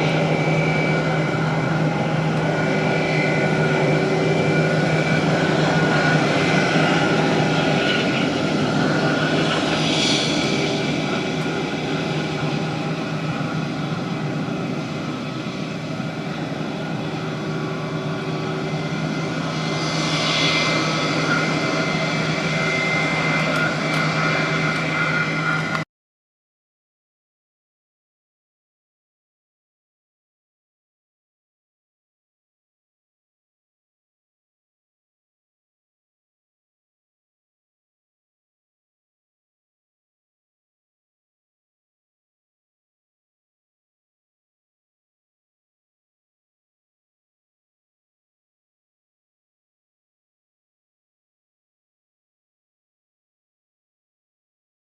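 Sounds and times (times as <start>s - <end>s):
aircraft engines running: 0.0s - 25.9s.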